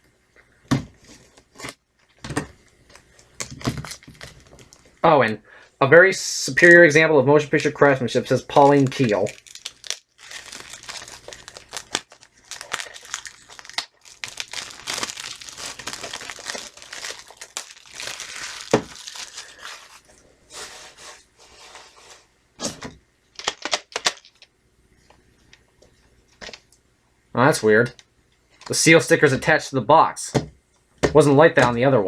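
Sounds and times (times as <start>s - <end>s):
plastic wrap crinkling: 0.9s - 5.0s, 6.6s - 22.3s, 23.4s - 24.5s.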